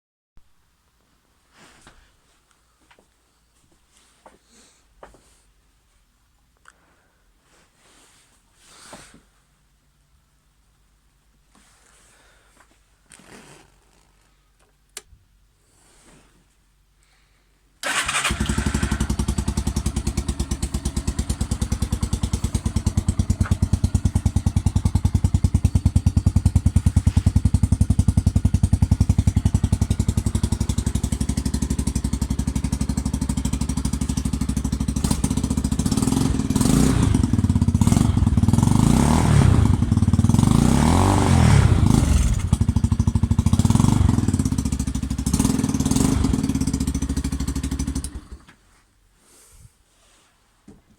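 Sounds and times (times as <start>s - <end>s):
motorcycle engine idling and revving: 17.8s - 48.5s.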